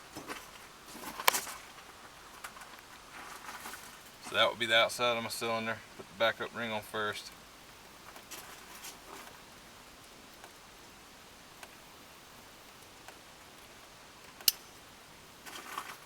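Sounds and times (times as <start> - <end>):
sharp click: 14.4 - 14.8.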